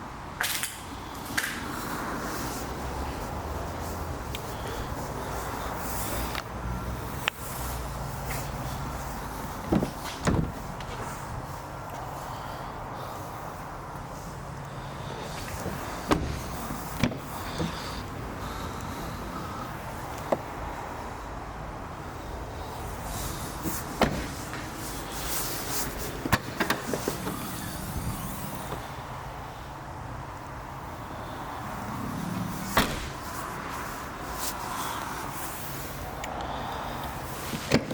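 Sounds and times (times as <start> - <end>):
car clicks and knocks: 9.6 - 11.0, 15.4 - 18.1, 23.6 - 24.8, 26.2 - 27.4, 37.5 - 37.9
dull thumps: 9.6 - 11.1, 15.6 - 17.8.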